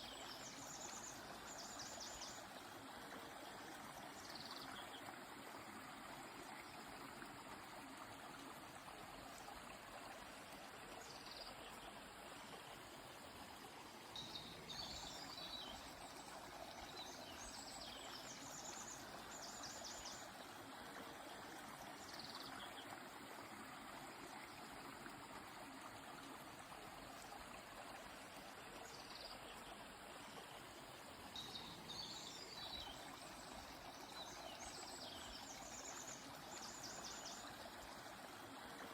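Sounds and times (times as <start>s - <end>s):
river flowing: 0.0s - 38.9s
small birds calling and trilling: 31.4s - 37.7s.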